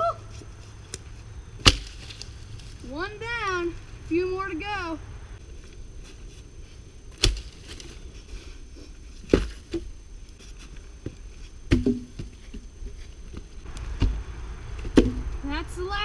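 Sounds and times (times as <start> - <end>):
wooden logs knocking: 11.7 - 12.3, 13.7 - 15.4.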